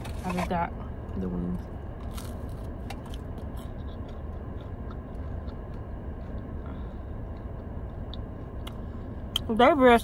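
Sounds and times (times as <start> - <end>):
low steady rumble: 0.0 - 10.0
chewing breadstick: 2.0 - 9.5.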